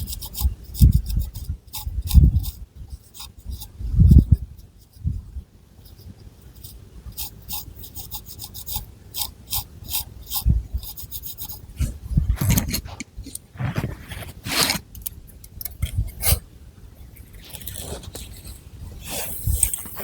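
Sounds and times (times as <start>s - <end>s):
fingernails scratching hair: 6.6s - 14.8s.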